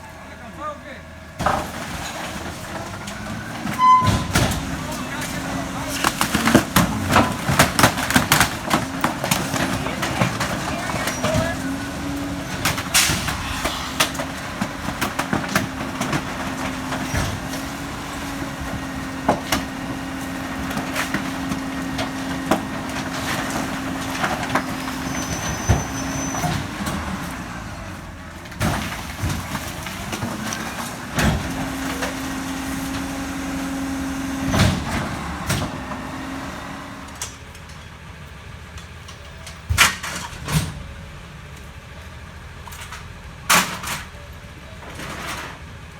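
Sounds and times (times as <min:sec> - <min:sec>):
garbage truck mechanical drone: 0:00.0 - 0:45.9
waste cracking and banging: 0:01.4 - 0:27.3.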